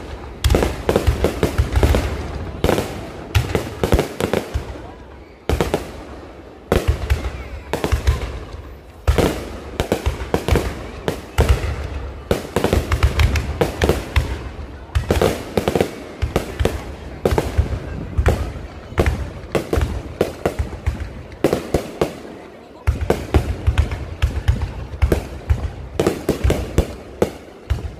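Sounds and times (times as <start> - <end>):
fireworks bangs and crackling: 0.0 - 27.9
fireworks deep booms: 0.0 - 27.9.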